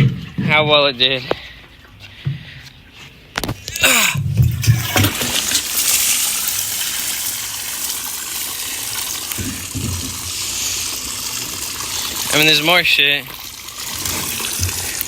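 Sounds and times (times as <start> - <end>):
liquid gushing out: 3.6 - 15.0.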